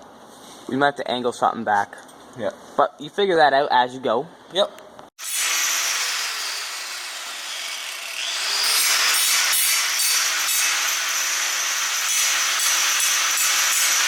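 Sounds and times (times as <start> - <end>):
power tool grinding: 5.2 - 14.0.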